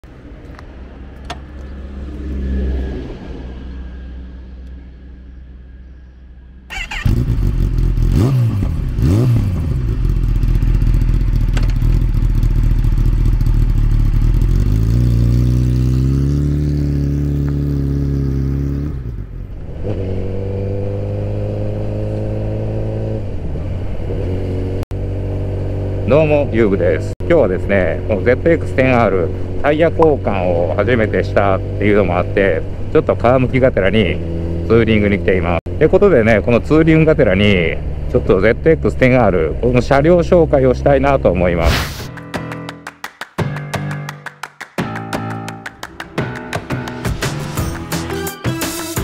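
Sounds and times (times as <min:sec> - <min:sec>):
motorcycle engine revving: 0:06.7 - 0:42.1.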